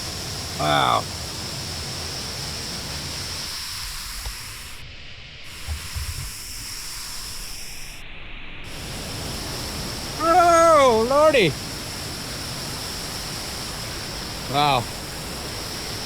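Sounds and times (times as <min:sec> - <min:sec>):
waterfall rushing: 0:00.0 - 0:03.7, 0:08.7 - 0:16.0.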